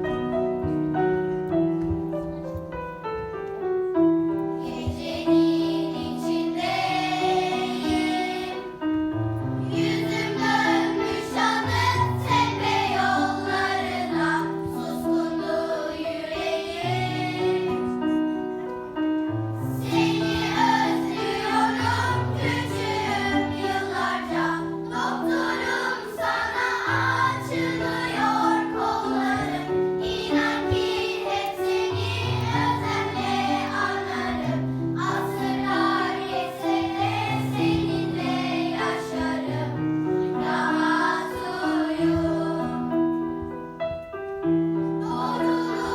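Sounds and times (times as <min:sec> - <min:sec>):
group of voices singing: 0:09.7 - 0:18.0, 0:19.8 - 0:42.9, 0:45.0 - 0:45.9.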